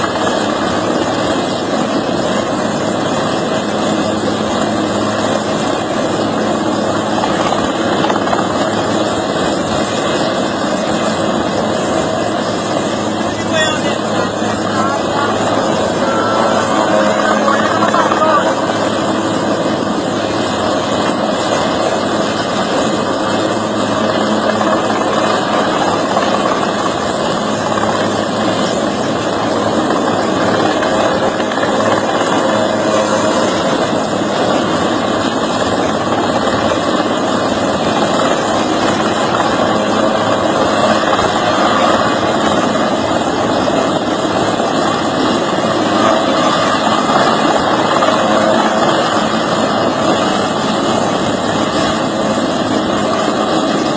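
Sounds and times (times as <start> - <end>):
loud engine drone: 0.0 - 53.9.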